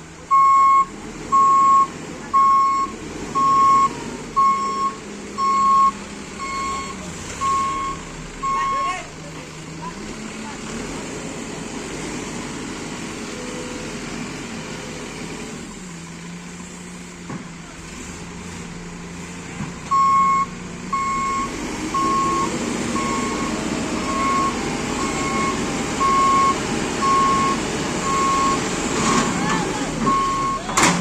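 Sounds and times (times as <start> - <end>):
diesel machinery running: 0.0 - 31.0
reversing alarm beeping: 0.3 - 9.0, 19.9 - 29.3, 30.1 - 30.7.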